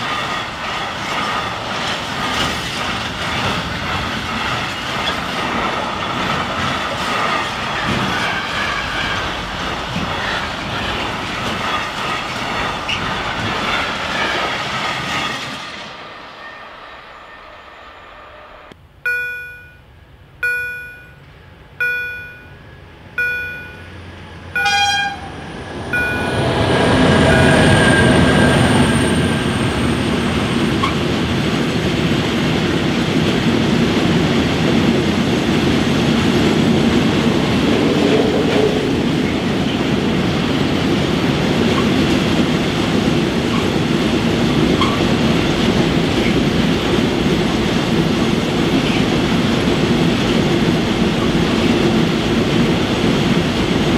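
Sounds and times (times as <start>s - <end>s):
freight train rumbling on rails: 0.0s - 53.9s
level crossing warning bell: 19.0s - 29.3s.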